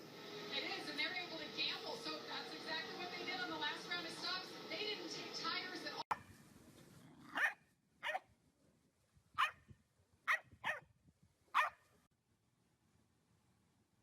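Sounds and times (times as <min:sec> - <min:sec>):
dog barking: 0:07.2 - 0:08.2, 0:09.4 - 0:09.6, 0:10.3 - 0:10.8, 0:11.6 - 0:11.8.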